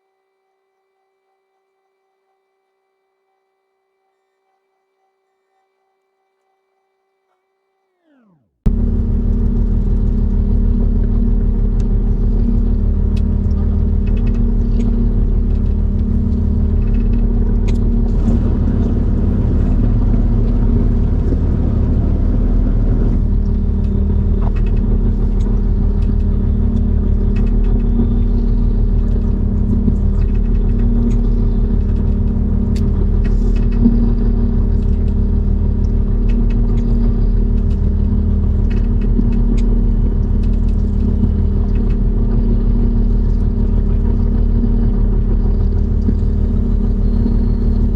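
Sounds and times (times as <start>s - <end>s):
light ticks: 8.7s - 44.6s
boat engine droning: 8.7s - 47.9s.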